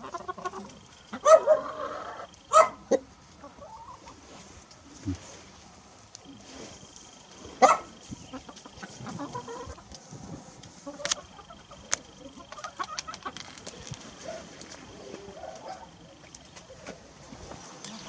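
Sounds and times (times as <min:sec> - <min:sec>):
rooster clucking: 0:00.0 - 0:04.2, 0:07.6 - 0:09.9, 0:10.8 - 0:14.4.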